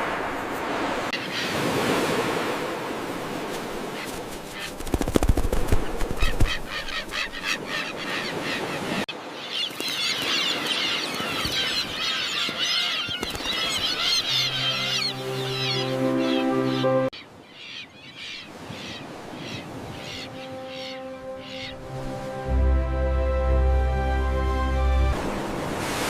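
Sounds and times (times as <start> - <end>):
terns calling: 6.2 - 21.9.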